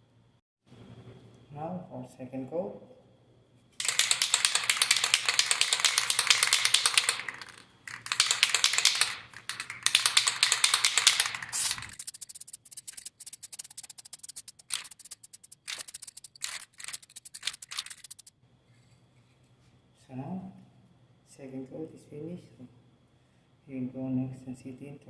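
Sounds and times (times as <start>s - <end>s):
rapid clicking rattle: 3.8s - 18.4s
aerosol spray can hissing: 9.8s - 18.3s.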